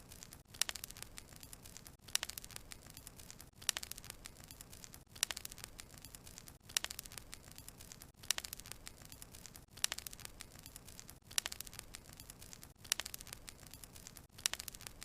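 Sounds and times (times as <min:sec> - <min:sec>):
burning logs crackling and popping: 0:00.0 - 0:15.0
faint fire hiss: 0:00.0 - 0:15.0.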